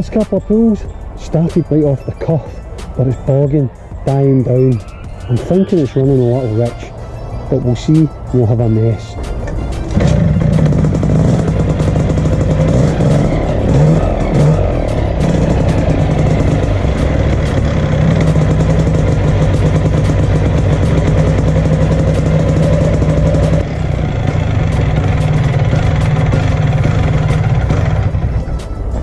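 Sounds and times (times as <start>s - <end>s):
two-stroke engine idling: 9.6s - 29.0s.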